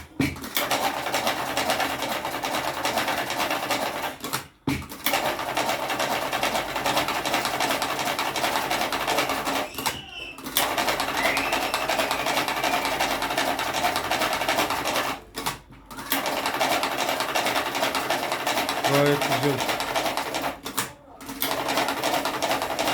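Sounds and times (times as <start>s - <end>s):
cigarette rolling machine clattering: 9.1s - 19.8s.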